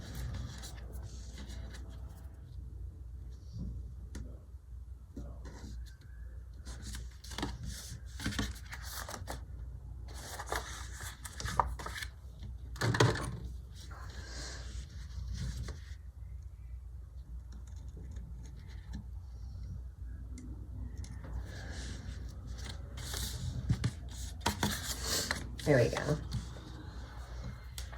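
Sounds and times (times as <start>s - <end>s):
paper rustling and peeling: 10.1s - 12.2s, 21.4s - 27.0s
steady low hum: 13.4s - 27.9s.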